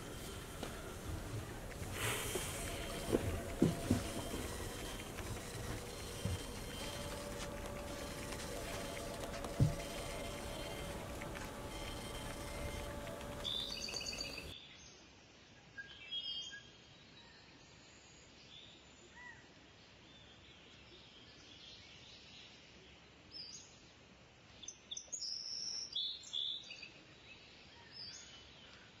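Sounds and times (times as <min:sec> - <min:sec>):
small birds chirping: 0:00.0 - 0:14.5
soft outdoor hiss: 0:00.0 - 0:14.5.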